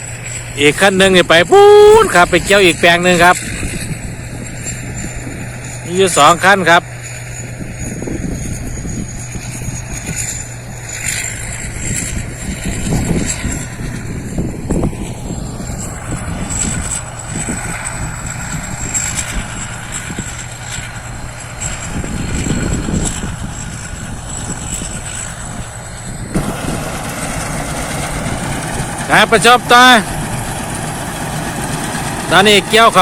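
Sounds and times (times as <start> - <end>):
harvester engine drone: 0.0 - 33.0
high-pitched whine: 0.0 - 33.0.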